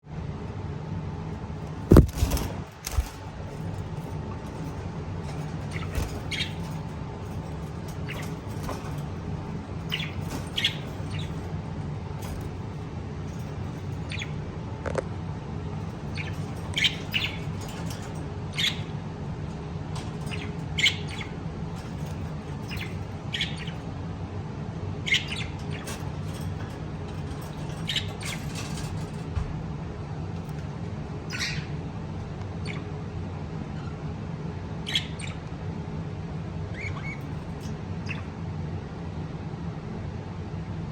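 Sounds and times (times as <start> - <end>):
steady low hum: 0.0 - 40.9
lovebirds chirping and squawking: 1.6 - 24.0, 24.9 - 29.4, 30.4 - 33.1, 34.8 - 35.5, 36.6 - 38.5.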